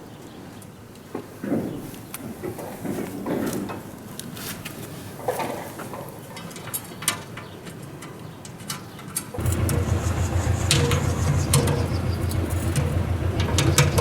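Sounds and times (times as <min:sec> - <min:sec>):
machinery humming with rattle: 0:09.4 - 0:14.0.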